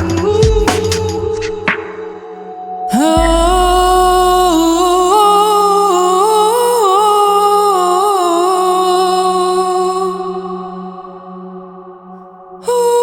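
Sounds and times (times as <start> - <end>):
girl singing wordless note: 2.9 - 10.2
backing track with low drone: 3.2 - 5.7.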